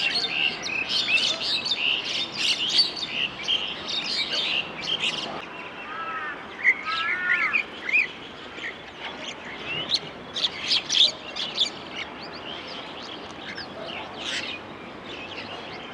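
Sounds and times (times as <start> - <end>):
lower arching bird calls: 0.0 - 15.9
small songbirds chirping: 0.0 - 15.9.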